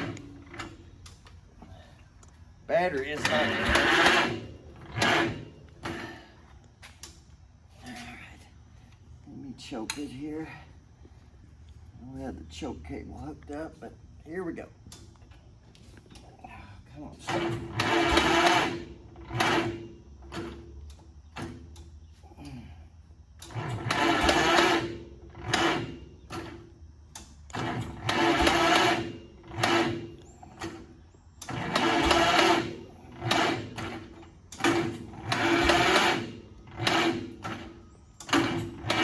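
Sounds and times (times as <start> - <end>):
tractor engine cranking on starter: 0.0 - 1.4, 2.2 - 7.3, 17.0 - 22.6, 23.3 - 39.0.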